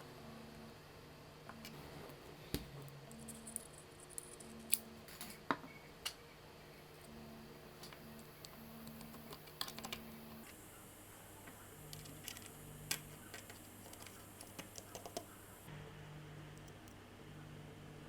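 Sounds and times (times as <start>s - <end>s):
faint steady hum: 0.0s - 18.0s
sharp clicks and taps: 11.9s - 15.4s.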